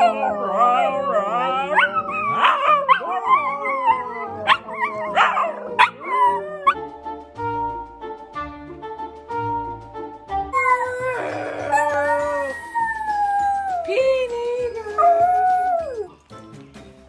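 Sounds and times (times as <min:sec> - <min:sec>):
dog howling and whining: 0:00.0 - 0:06.8, 0:10.6 - 0:14.0, 0:14.6 - 0:16.1
background music held notes: 0:03.4 - 0:17.0.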